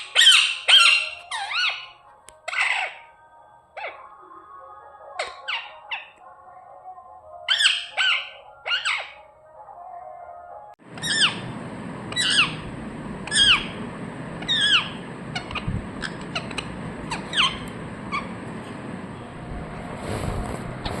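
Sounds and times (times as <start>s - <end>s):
parrot squawking: 0.0s - 3.1s, 5.2s - 6.2s, 7.5s - 9.3s, 10.9s - 13.8s, 14.4s - 18.4s.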